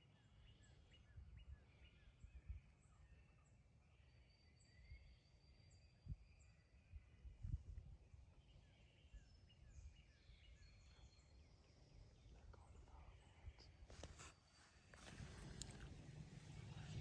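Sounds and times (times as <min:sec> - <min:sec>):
soft clicks: 0:15.0 - 0:16.0
low rumble: 0:15.0 - 0:17.0.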